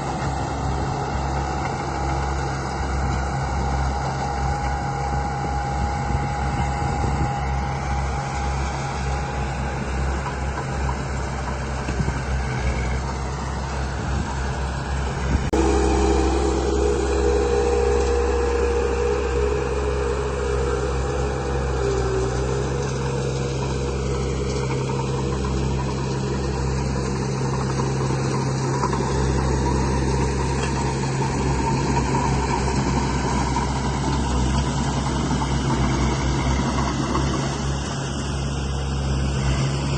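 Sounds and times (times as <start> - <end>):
model vehicle engine drone: 0.0 - 39.9
high whine dipping in pitch: 15.5 - 36.0.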